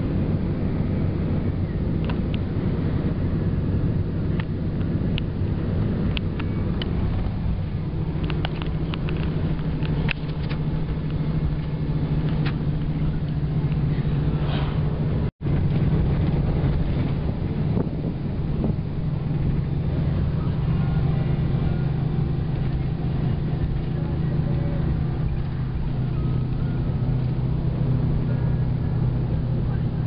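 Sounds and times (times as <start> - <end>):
vehicle engine and road drone: 0.0 - 30.0
light ticks and rattles: 6.1 - 14.0.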